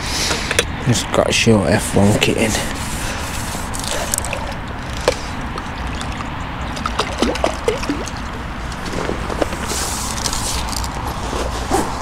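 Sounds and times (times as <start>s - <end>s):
water splashing and trickling: 3.5s - 9.3s.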